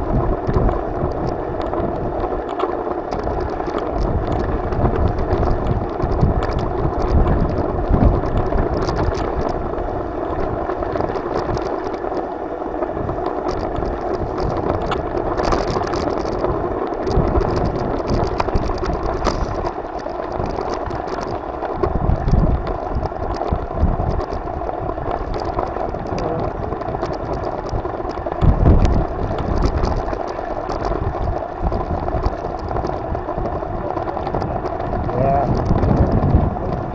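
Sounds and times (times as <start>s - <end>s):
bike rattles and clicks: 0.0s - 36.9s
wind buffeting microphone: 0.0s - 36.9s.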